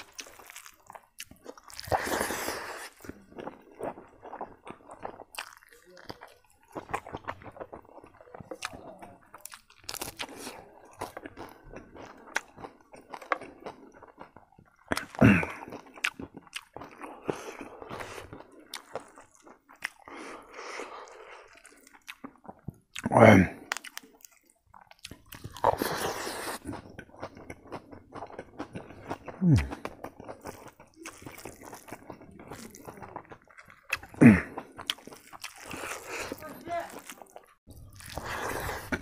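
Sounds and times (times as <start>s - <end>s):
crunchy bite: 0.0s - 7.7s, 9.4s - 13.8s, 21.1s - 39.0s
person chewing food: 0.0s - 39.0s.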